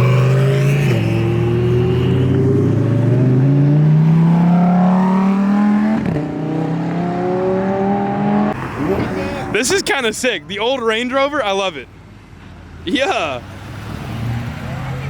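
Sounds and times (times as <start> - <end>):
car engine accelerating: 0.0 - 9.7.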